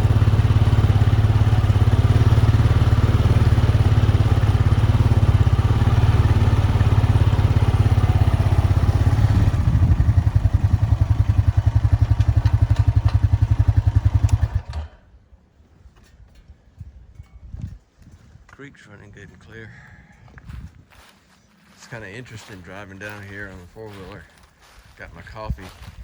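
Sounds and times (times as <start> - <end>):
four-wheeler engine running: 0.0 - 15.1.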